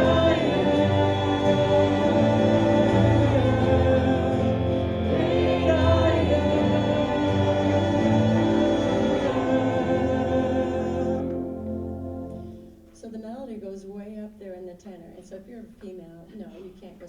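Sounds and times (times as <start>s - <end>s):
group singing worship song: 0.0s - 12.7s.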